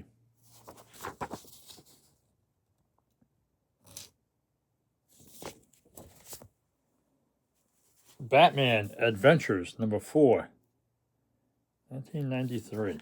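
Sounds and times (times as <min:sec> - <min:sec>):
comic books rustling and sliding: 0:00.4 - 0:02.2, 0:05.1 - 0:06.6, 0:07.8 - 0:09.2, 0:12.2 - 0:13.0.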